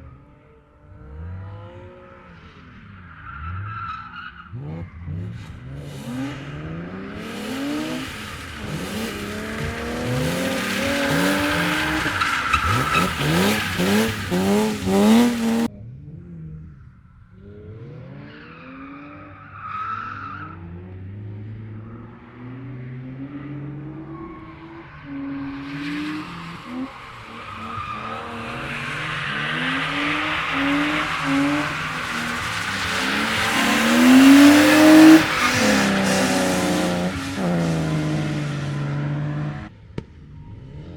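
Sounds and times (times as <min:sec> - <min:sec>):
car engines revving: 0:00.0 - 0:40.9
tyres squealing: 0:08.6 - 0:15.7.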